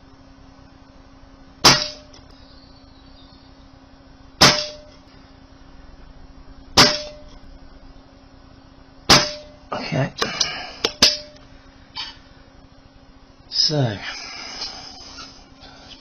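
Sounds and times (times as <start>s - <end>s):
faint steady hum: 0.0s - 16.0s
air rifle shots: 1.6s - 2.2s, 4.4s - 5.0s, 6.8s - 7.4s, 9.1s - 9.6s.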